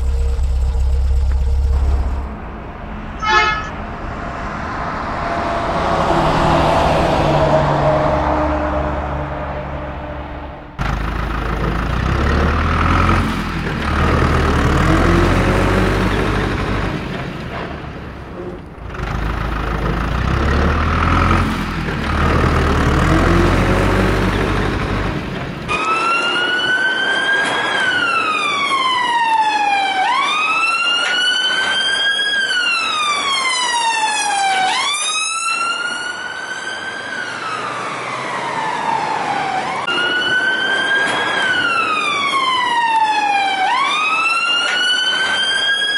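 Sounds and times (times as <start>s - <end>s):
police siren wailing: 0.0s - 10.6s, 25.7s - 45.9s
looping vehicle-like rumble: 0.0s - 29.0s.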